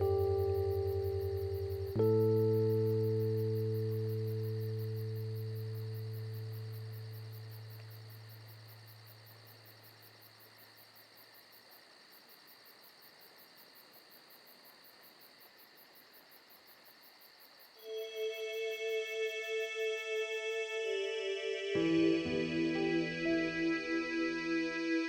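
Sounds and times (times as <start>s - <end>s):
keyboard music: 0.0s - 8.0s, 17.8s - 25.0s
low music note: 0.0s - 8.3s
insects chirring: 0.0s - 25.0s.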